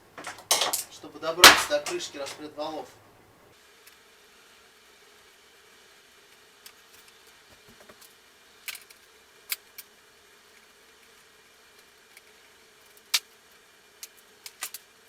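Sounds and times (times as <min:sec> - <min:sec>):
metallic clicks of hand tools: 0:00.1 - 0:02.4.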